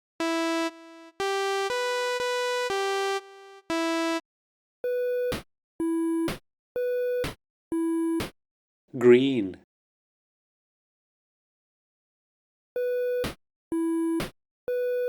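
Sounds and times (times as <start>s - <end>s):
chiptune synthesizer melody: 0.2s - 4.2s.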